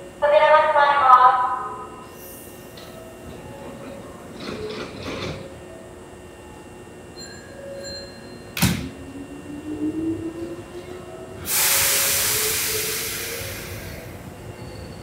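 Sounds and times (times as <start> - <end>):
electric train motor whine: 8.3 - 15.0
loud air hiss: 11.4 - 14.2.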